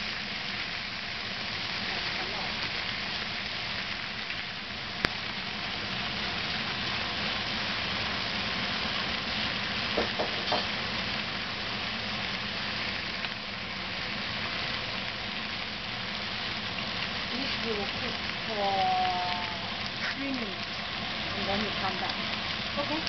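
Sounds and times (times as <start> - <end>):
vegetables sizzling in a pan: 0.0 - 23.0
wooden spatulas knocking on pan: 10.0 - 10.7.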